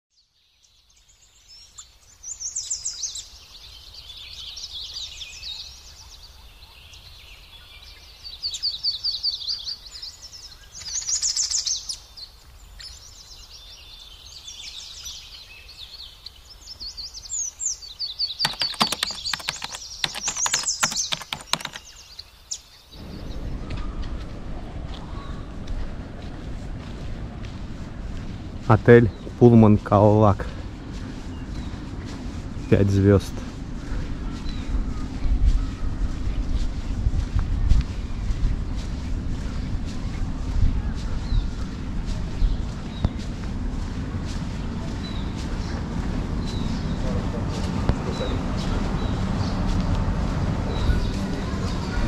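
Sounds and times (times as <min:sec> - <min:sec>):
birds chirping trills: 0:00.2 - 0:52.0
bird sharp clicking notes: 0:18.4 - 0:22.0.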